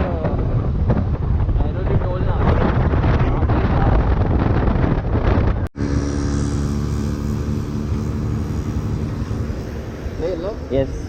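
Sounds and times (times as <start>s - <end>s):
motorcycle riding: 0.0s - 11.0s
wind on microphone: 0.0s - 11.0s
engine humming steadily: 5.8s - 11.0s.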